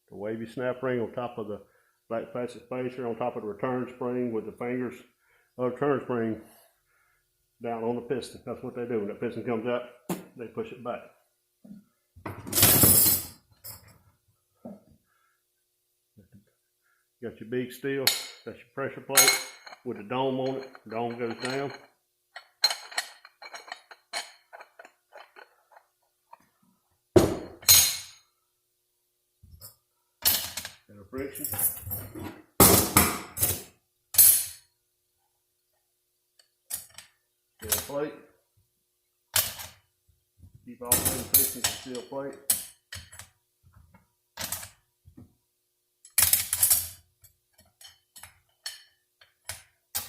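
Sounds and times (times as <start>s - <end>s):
steel plates clinking: 19.1s - 25.9s.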